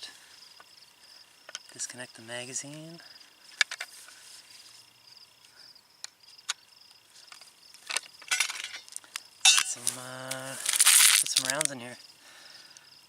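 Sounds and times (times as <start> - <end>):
insects trilling: 0.0 - 13.0
rifle magazine clicking and rattling: 10.7 - 11.8.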